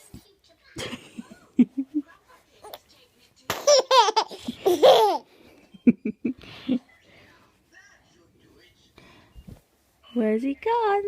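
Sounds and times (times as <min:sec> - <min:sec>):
baby laughing: 0:03.5 - 0:05.3
baby squealing giggles: 0:03.6 - 0:05.2.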